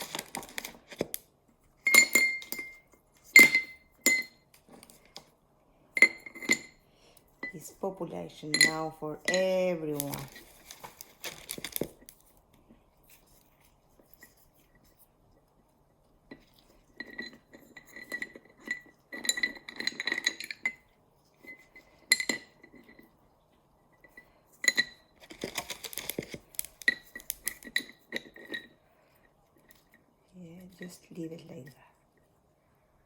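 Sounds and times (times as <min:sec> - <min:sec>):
glass container clinking: 0:01.8 - 0:04.5, 0:06.0 - 0:06.8, 0:08.5 - 0:11.9, 0:16.9 - 0:23.1.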